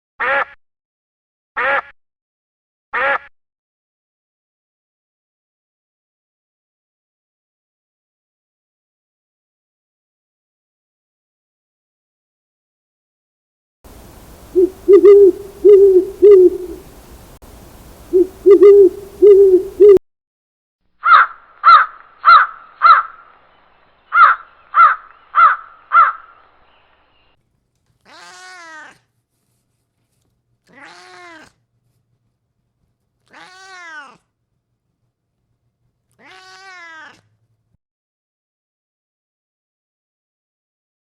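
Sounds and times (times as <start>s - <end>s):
bird hooting: 14.1s - 20.0s
short sharp bird calls: 14.3s - 17.2s, 18.1s - 20.0s
cat meowing: 30.7s - 31.5s, 33.3s - 34.2s, 36.2s - 37.2s.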